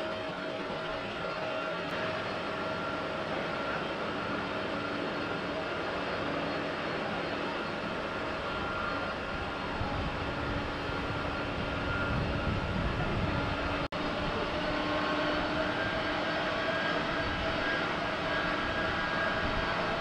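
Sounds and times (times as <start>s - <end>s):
jet engines running: 0.0s - 20.0s.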